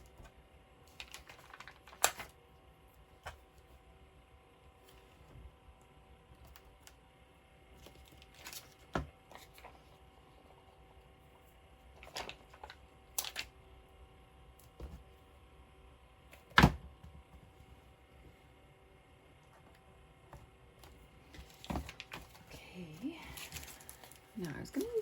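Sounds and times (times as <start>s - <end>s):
paper rustling: 0.9s - 2.3s.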